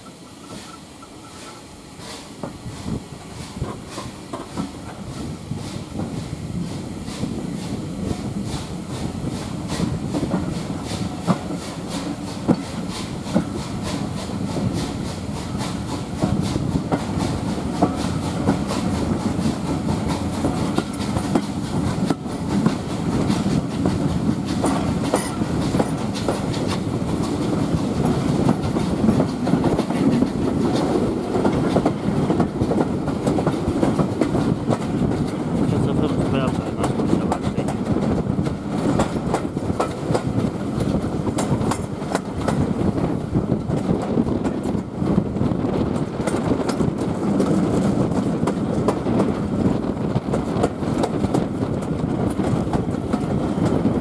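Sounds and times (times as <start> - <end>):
train rumbling along: 0.0 - 54.0
wheels clicking over rail joints: 9.4 - 49.6.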